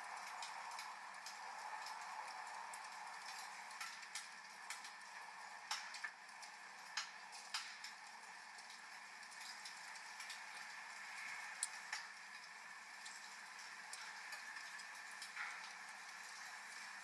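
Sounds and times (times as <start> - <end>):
hiss of rain: 0.0 - 17.0
wood fire crackling and popping: 0.0 - 17.0.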